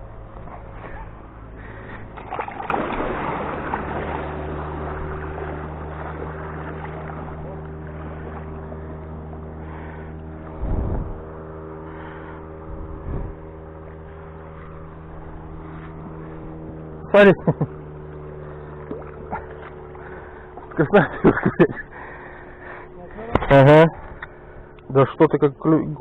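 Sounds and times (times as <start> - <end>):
motorboat engine humming: 0.0 - 26.0
rush of noise: 9.6 - 13.7.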